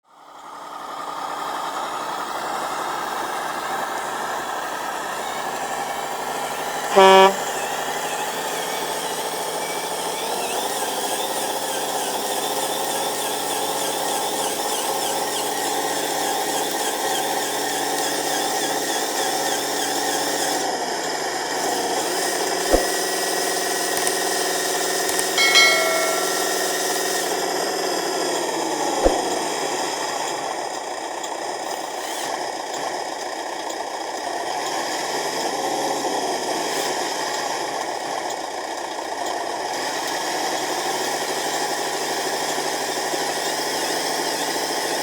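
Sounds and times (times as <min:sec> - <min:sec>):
short loud horn blast: 0:06.9 - 0:07.5.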